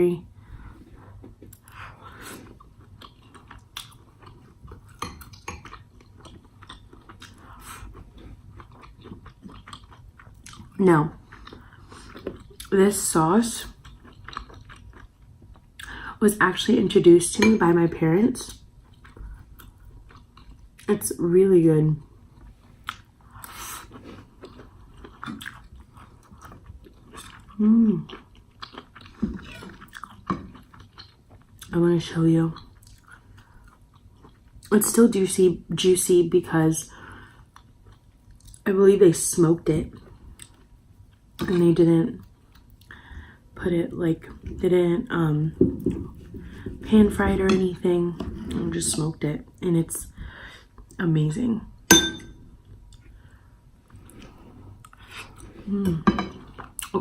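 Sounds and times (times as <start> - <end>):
person chewing food: 0.6 - 12.7, 13.7 - 16.0, 18.5 - 20.9, 22.3 - 31.7, 32.6 - 34.7, 37.2 - 38.6, 42.2 - 43.4, 52.0 - 55.7.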